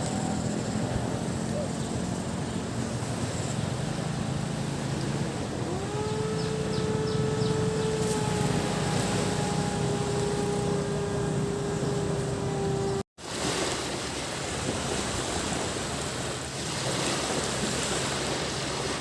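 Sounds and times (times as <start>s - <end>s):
higher pitched engine tone: 0.0s - 13.1s
motor engine droning: 0.0s - 13.1s
beach ambience: 0.0s - 19.0s.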